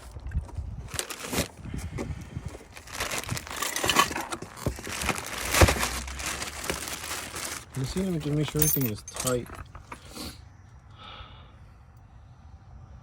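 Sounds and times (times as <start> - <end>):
packaging crinkling and rustling: 0.0 - 1.6, 2.5 - 10.0.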